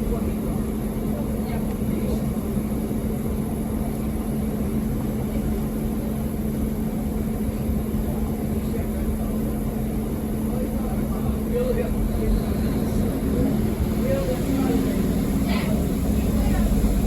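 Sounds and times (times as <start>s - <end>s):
train running drone: 0.0s - 17.0s.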